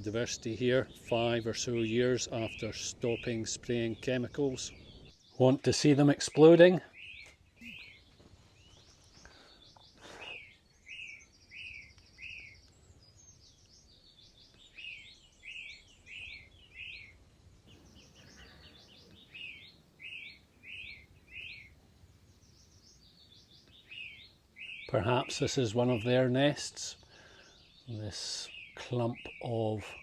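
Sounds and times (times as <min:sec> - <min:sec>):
songbird singing faintly: 0:00.0 - 0:30.0
buzzy bird trill: 0:14.7 - 0:26.2.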